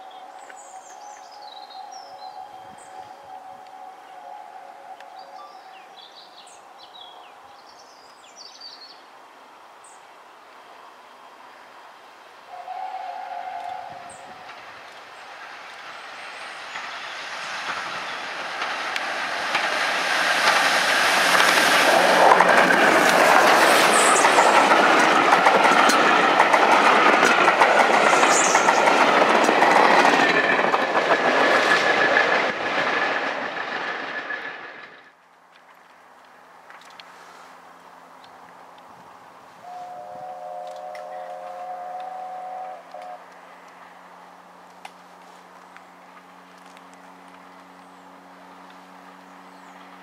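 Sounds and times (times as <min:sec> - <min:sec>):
passenger train passing: 0:00.0 - 0:50.0
wheels clickety-clack over rail joints: 0:13.3 - 0:37.1, 0:40.6 - 0:50.0.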